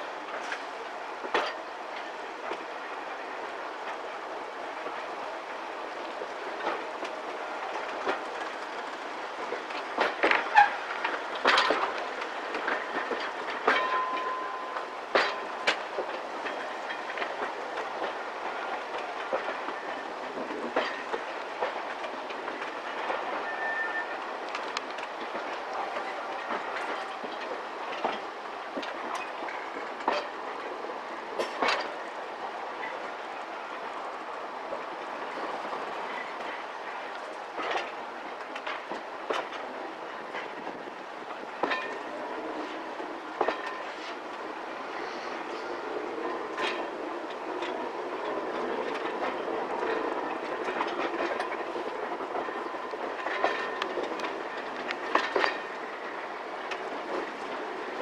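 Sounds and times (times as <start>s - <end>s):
train carriage running noise: 0.0s - 58.0s
wheels clicking over rail joints: 0.3s - 4.2s, 4.8s - 58.0s
wheel squeal: 23.4s - 24.2s.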